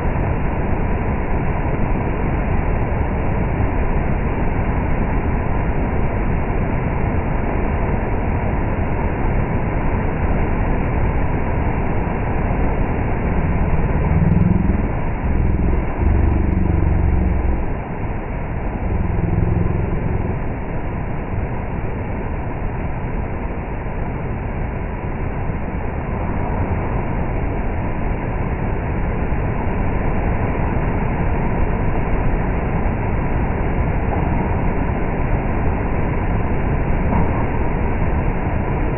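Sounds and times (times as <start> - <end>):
heavy rain pouring: 11.1 - 24.4
deep low rumble: 11.2 - 25.4.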